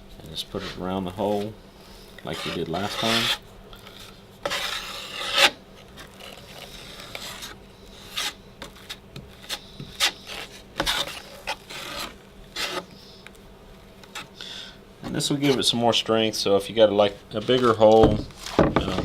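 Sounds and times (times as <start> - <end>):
blade scraping drywall mud: 0.5 - 1.6, 2.2 - 12.9.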